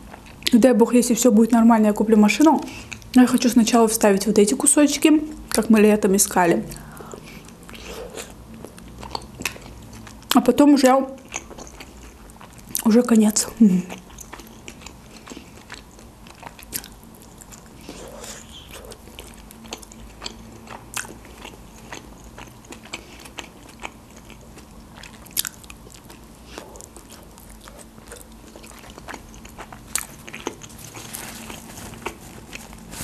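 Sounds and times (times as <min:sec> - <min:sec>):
biting and chewing: 0:13.9 - 0:33.0.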